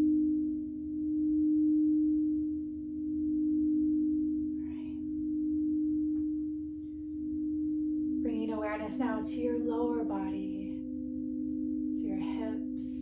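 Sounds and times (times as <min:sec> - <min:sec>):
singing bowl ringing: 0:00.0 - 0:13.0.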